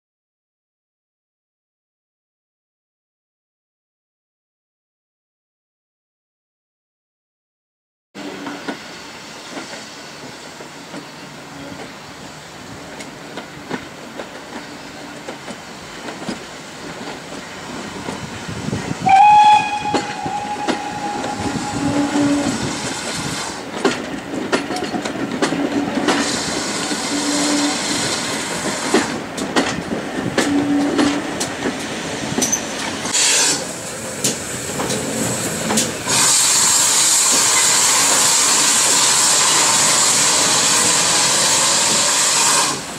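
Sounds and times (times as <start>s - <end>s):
loud steady hiss of steam: 8.2s - 24.9s, 25.6s - 29.5s, 30.2s - 42.9s
train wheels clicking over rails: 12.8s - 42.9s
steam whistle: 19.0s - 22.8s, 27.0s - 28.0s, 36.1s - 42.9s.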